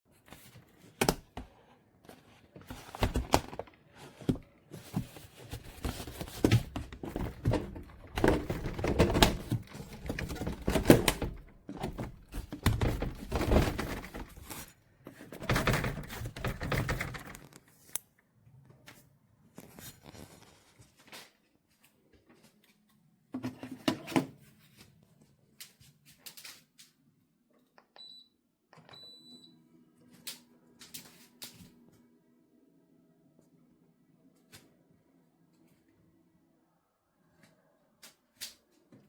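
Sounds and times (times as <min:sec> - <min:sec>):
crinkling rustles: 0:02.2 - 0:14.8.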